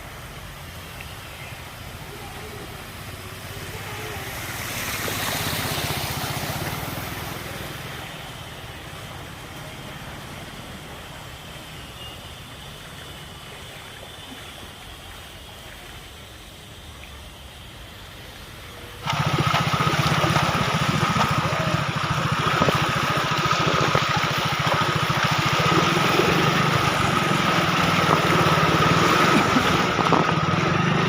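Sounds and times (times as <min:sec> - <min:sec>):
rush of displaced water: 0:00.0 - 0:31.0
low engine hum: 0:18.8 - 0:31.0.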